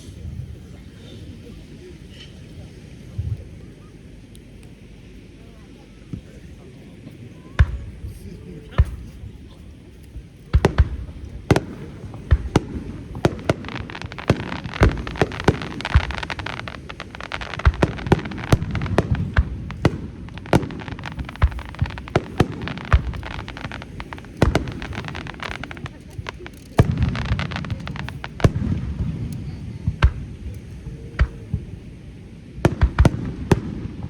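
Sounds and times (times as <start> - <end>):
firework crackle and rumble: 0.0 - 34.0
firework shells booming: 7.5 - 34.0.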